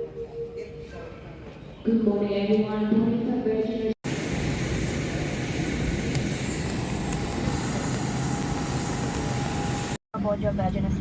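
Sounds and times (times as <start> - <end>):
jet airliner noise: 4.1 - 10.0.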